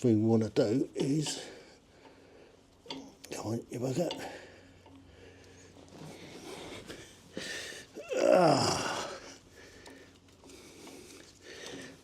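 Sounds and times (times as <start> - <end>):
man groaning with effort: 8.0 - 9.2.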